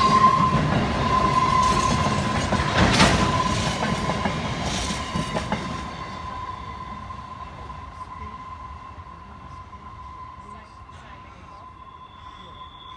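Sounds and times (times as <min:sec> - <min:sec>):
wheels clacking over rail joints: 0:00.0 - 0:05.8
steady high tone: 0:06.0 - 0:12.9.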